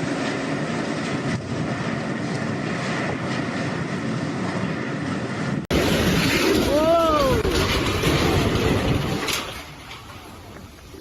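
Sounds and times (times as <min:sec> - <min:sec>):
wind roaring: 0:00.0 - 0:11.0
heavy rain: 0:05.7 - 0:09.7.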